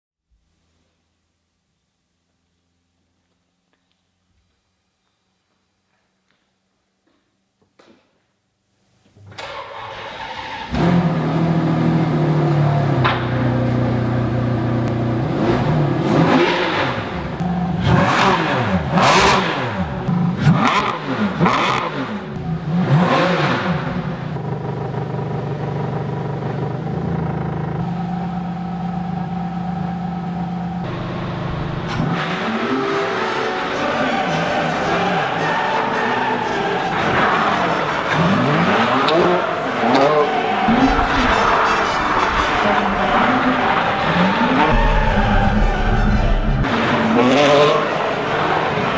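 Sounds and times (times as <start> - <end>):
sports car engine revving: 10.7 - 35.0, 36.4 - 48.9.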